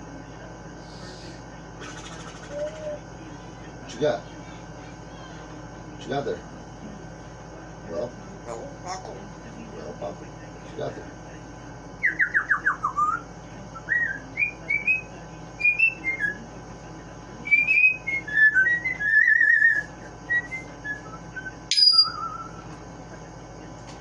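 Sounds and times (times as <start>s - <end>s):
parrot whistling: 1.2s - 3.0s, 12.0s - 13.2s, 13.8s - 16.4s, 17.4s - 22.7s
parrot squeak: 21.7s - 22.6s.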